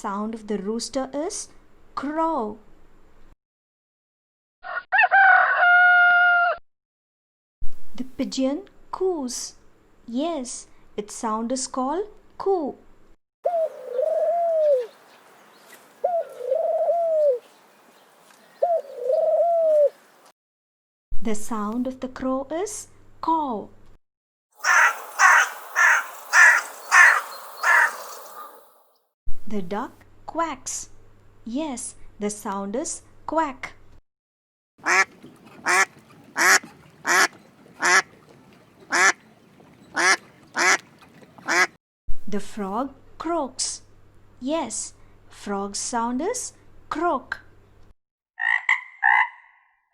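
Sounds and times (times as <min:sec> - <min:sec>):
pigeon cooing: 0:13.5 - 0:14.9, 0:16.0 - 0:17.4, 0:18.6 - 0:20.0, 0:24.6 - 0:28.6
duck quacking: 0:24.6 - 0:28.6, 0:34.8 - 0:38.2, 0:38.9 - 0:39.2, 0:39.9 - 0:41.8.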